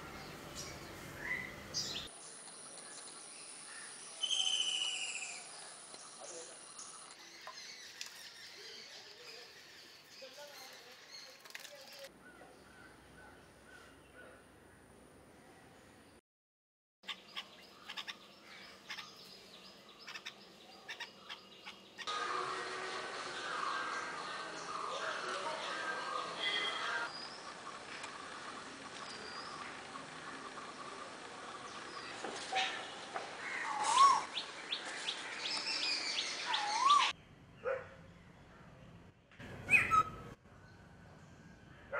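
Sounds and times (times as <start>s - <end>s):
birds chirping: 0.0s - 14.9s, 17.0s - 22.1s, 22.8s - 38.5s, 39.1s - 40.8s
bird swooping whistle: 4.2s - 5.4s
bird chirping: 17.0s - 22.1s, 26.0s - 41.5s.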